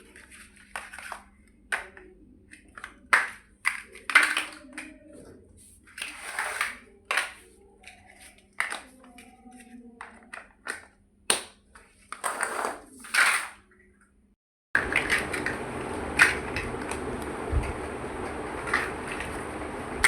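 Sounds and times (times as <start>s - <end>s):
toy bricks snapping together: 2.8s - 4.9s, 10.6s - 11.6s.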